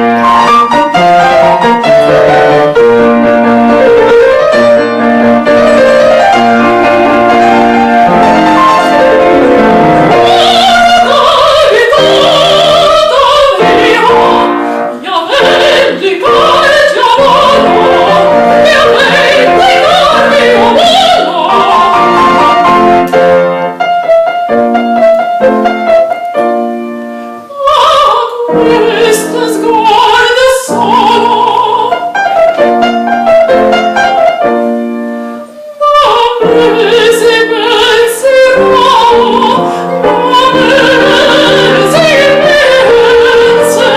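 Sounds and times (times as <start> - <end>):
piano accompaniment: 0.0 - 43.9
operatic singing voice: 9.2 - 22.8, 27.5 - 32.1, 35.7 - 43.9.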